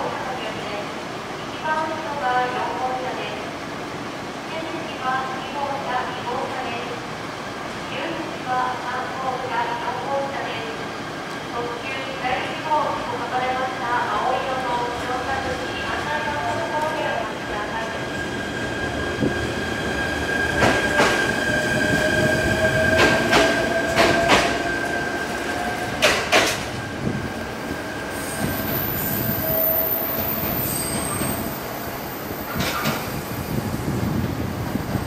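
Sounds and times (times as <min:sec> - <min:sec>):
wheels clacking over rail joints: 0:26.0 - 0:26.7.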